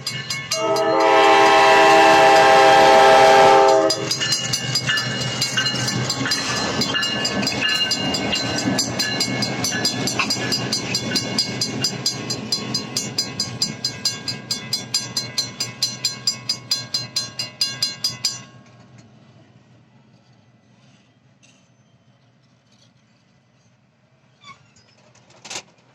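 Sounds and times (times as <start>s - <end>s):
railroad crossing bell ringing: 0.0s - 19.0s
freight train rumbling: 0.0s - 25.9s.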